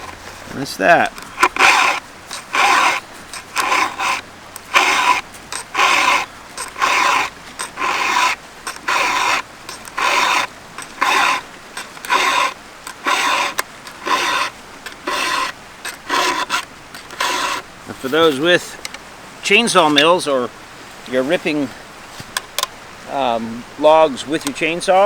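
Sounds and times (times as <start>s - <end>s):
file rasping on chainsaw chain: 0.8s - 18.8s.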